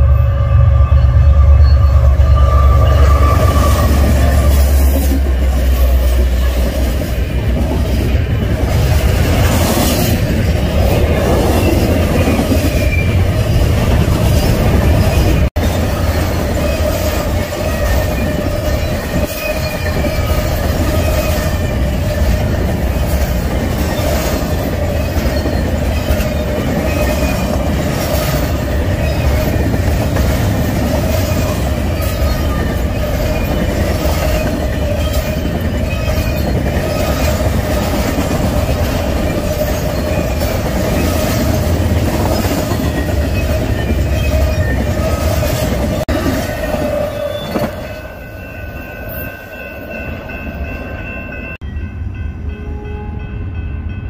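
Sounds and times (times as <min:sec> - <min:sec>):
steady ringing tone: 0:00.0 - 0:04.8
freight train rumbling past: 0:00.0 - 0:54.0.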